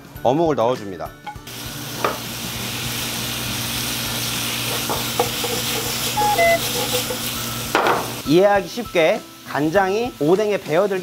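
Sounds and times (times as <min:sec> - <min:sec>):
food sizzling in a frying pan: 0:01.5 - 0:11.0.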